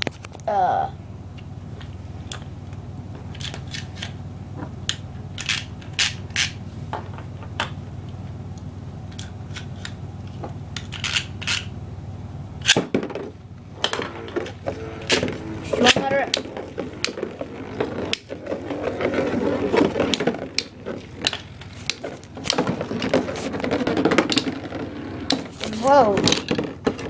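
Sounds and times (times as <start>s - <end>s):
plastic spinning tops clicking: 15.0s - 27.0s.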